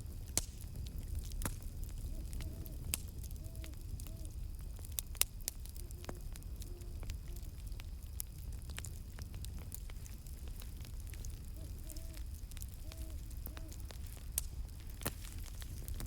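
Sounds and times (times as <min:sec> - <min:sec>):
campfire crackling: 0:00.0 - 0:16.0
distant owl hoots: 0:02.0 - 0:04.4, 0:11.3 - 0:14.0.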